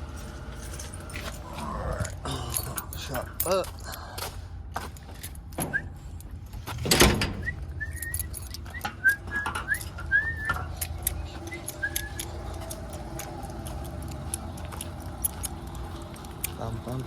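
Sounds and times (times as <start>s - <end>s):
keys jangling: 0.0s - 17.0s
steady low hum: 0.0s - 17.0s
person whistling: 7.4s - 12.6s.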